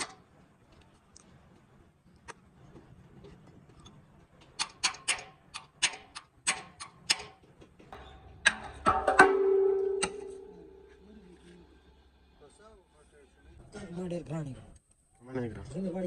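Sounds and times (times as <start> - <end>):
steady hum: 8.6 - 14.3.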